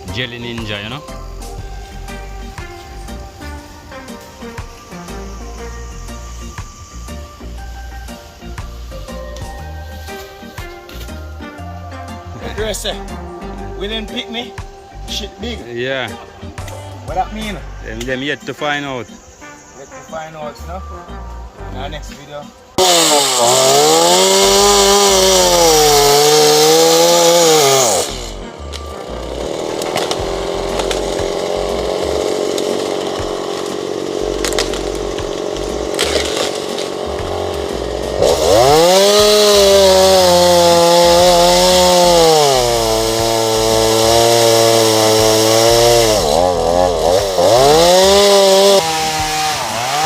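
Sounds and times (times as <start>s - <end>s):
chainsaw engine at high revs: 22.8s - 50.0s.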